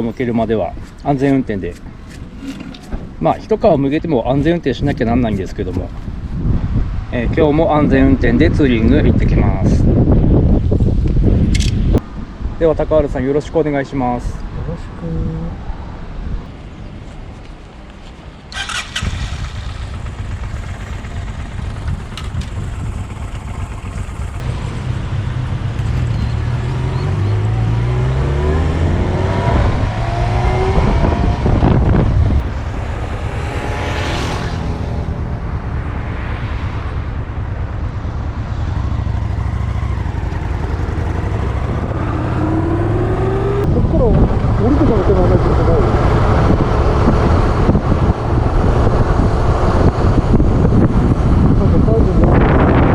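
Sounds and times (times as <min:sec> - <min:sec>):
motorcycle accelerating through gears: 0:18.5 - 0:52.9.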